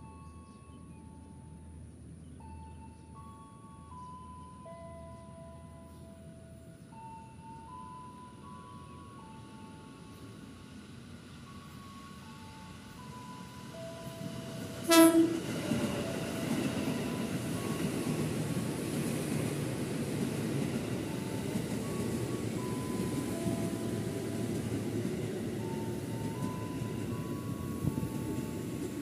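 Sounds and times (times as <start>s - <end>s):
train wheels rumbling: 8.4s - 29.0s
train horn blast: 14.8s - 15.6s.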